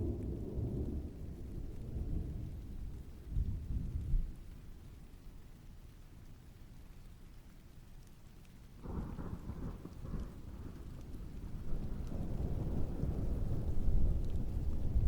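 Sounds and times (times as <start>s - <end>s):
thunder rumbling: 0.0s - 4.5s, 8.8s - 15.0s
steady rainfall: 0.0s - 15.0s.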